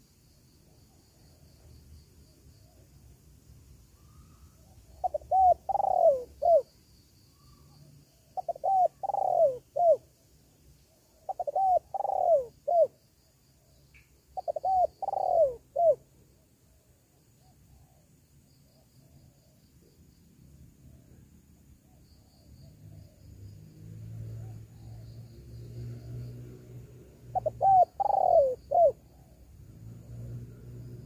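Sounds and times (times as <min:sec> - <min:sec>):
dove cooing: 0:04.8 - 0:06.7, 0:08.4 - 0:10.0, 0:11.2 - 0:13.0, 0:14.4 - 0:16.0, 0:27.1 - 0:30.2.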